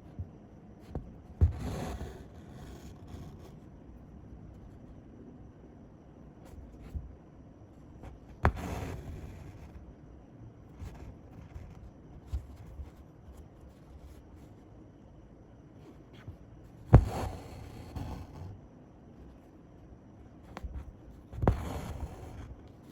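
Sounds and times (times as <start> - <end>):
thread rasping through fabric: 0.9 - 3.5, 8.0 - 9.8, 16.9 - 18.6, 20.5 - 22.9
needle popping through fabric: 8.0 - 9.8, 16.2 - 18.6, 20.5 - 22.9.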